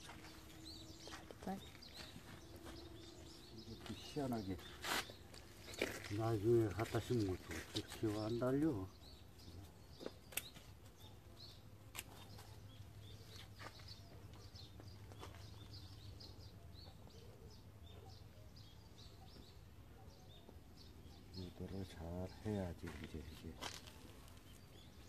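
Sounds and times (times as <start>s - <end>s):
small birds chirping: 0.0s - 25.0s
sharp clicks: 10.3s - 10.7s.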